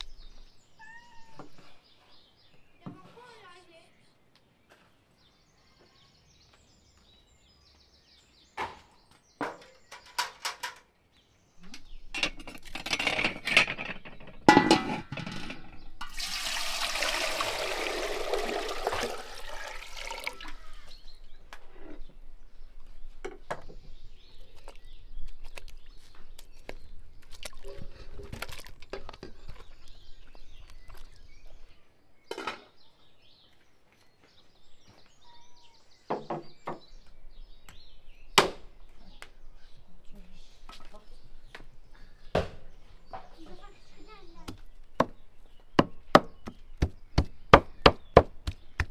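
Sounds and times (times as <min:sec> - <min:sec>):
kitchen clatter: 0:12.2 - 0:16.2
water pouring into metal pot: 0:16.0 - 0:20.9.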